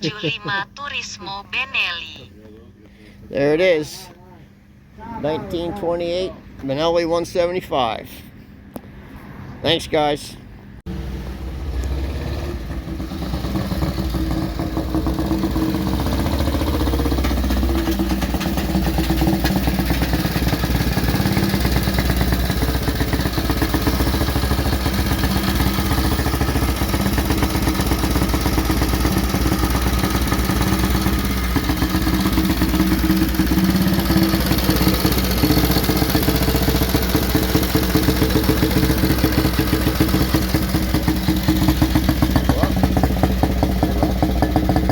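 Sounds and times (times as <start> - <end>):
motorcycle engine idling: 12.6 - 44.9.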